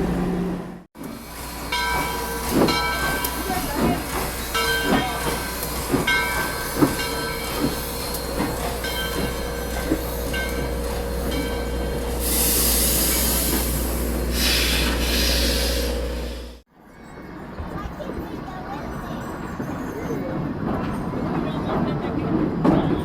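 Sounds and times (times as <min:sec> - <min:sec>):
low train rumble: 0:00.0 - 0:23.0
train wheels clicking on track: 0:01.0 - 0:16.6
loud hiss: 0:12.1 - 0:16.6.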